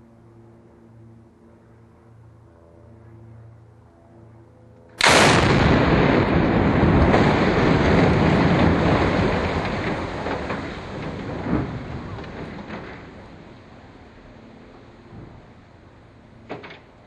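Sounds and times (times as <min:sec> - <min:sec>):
long rumble: 0:00.0 - 0:17.0
loud explosive blast: 0:05.0 - 0:12.2
sharp crack: 0:05.0 - 0:13.3.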